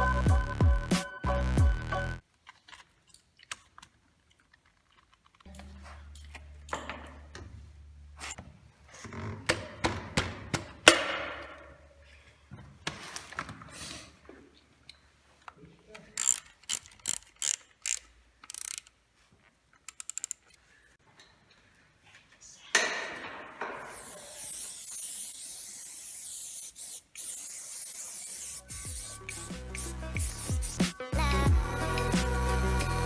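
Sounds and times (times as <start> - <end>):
mechanical clicks and scrapes: 16.1 - 18.9, 19.8 - 20.6, 23.8 - 30.8
ratcheting clicks: 16.2 - 19.0, 19.8 - 20.6, 26.0 - 30.8.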